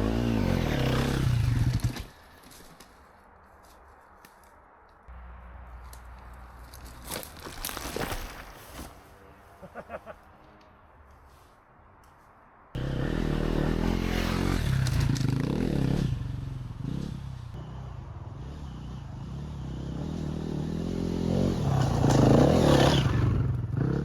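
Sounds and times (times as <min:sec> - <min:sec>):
dirt bike engine revving: 0:00.0 - 0:02.0, 0:12.8 - 0:24.0.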